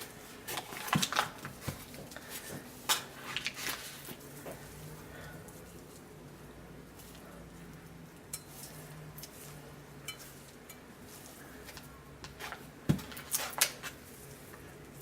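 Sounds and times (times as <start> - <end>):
faint steady hum: 0.0 - 15.0
utensils clinking against a pot: 8.2 - 11.0.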